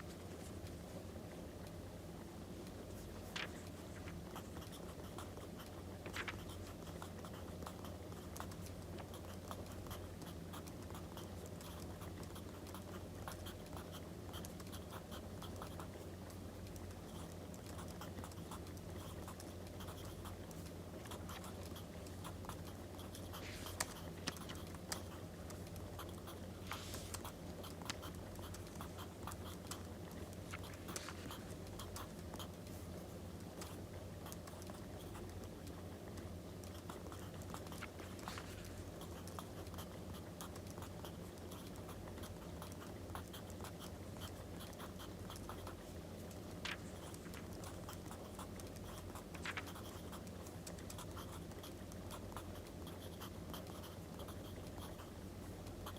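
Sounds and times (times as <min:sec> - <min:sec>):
paper rustling: 0:03.0 - 0:04.2, 0:06.0 - 0:06.4, 0:26.6 - 0:27.2, 0:30.6 - 0:31.4, 0:49.4 - 0:49.7.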